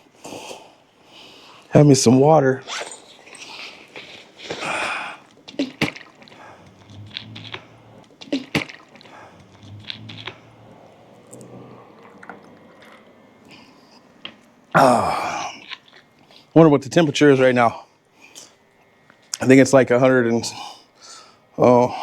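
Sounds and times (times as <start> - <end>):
person gulping water: 2.6 - 16.5.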